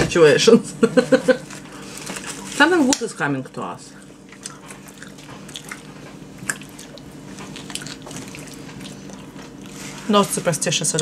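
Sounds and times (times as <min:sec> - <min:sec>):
faint steady hum: 0:00.0 - 0:11.0
wet chewing and lip-smacking: 0:04.0 - 0:10.0.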